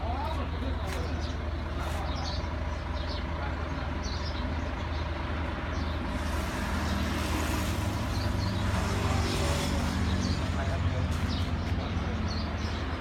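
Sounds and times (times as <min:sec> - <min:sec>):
large vehicle engine humming: 0:00.0 - 0:13.0.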